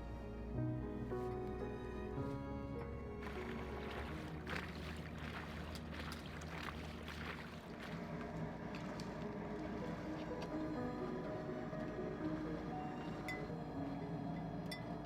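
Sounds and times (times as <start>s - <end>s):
music: 0.0s - 7.5s, 8.8s - 15.0s
low hum: 0.0s - 15.0s
water splashing against boat hull: 3.2s - 10.2s.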